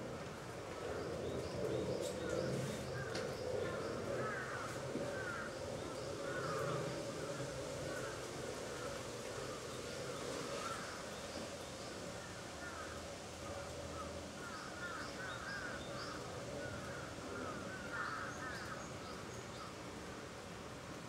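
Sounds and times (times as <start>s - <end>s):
steady background noise: 0.0s - 21.0s
birds calling: 0.8s - 8.2s.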